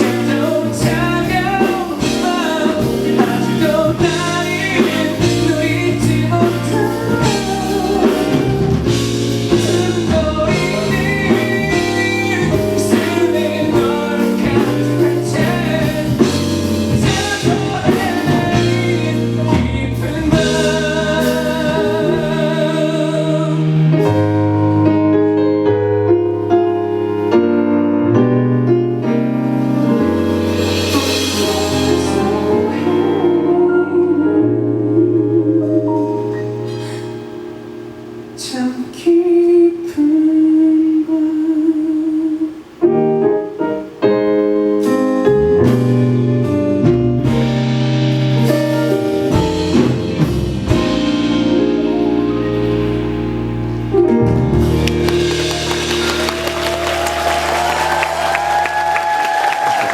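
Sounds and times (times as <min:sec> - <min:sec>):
man singing pop ballad: 0:00.0 - 0:24.1, 0:30.8 - 0:37.2, 0:38.4 - 0:42.6
drums: 0:00.0 - 0:25.4, 0:28.7 - 0:40.7, 0:42.4 - 0:59.9
band accompaniment: 0:00.0 - 0:39.0, 0:42.7 - 0:59.9.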